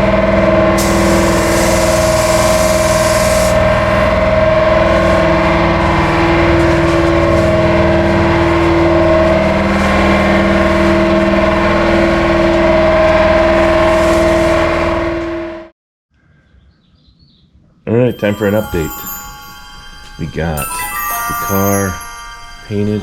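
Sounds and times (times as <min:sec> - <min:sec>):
air compressor humming: 0:00.8 - 0:04.2.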